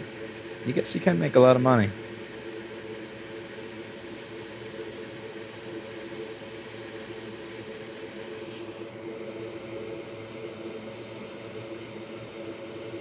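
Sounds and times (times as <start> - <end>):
fan whirring and hissing: 0.0 - 13.0
steady humming tones: 0.7 - 2.0.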